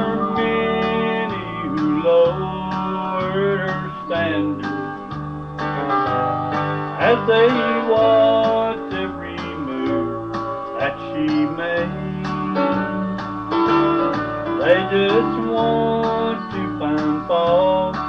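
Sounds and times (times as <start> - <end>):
bass notes: 0.0 - 18.0
guitar strumming: 0.0 - 18.0.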